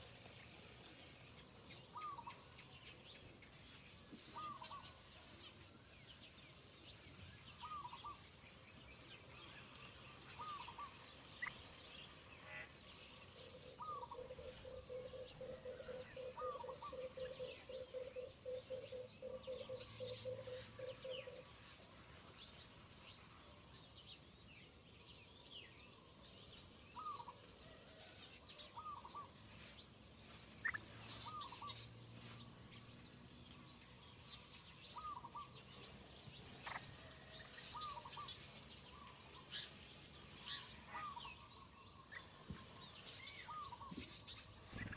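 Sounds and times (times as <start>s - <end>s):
faint high bird chirps: 34.2s - 44.9s.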